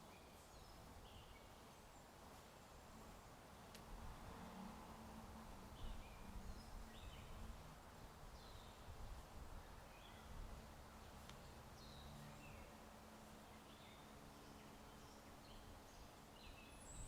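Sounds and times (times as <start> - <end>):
faint birdsong: 0.0 - 17.0
low hiss of wind: 0.0 - 17.0
faint click: 3.7 - 3.9, 11.2 - 11.4.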